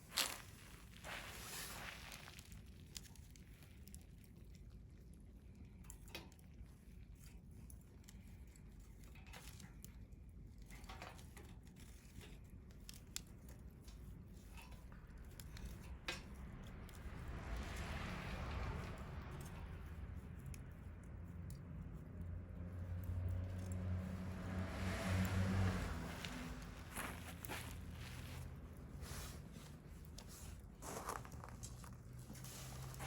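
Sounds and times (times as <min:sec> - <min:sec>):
soft rush of noise: 0:00.0 - 0:02.6, 0:22.1 - 0:33.0.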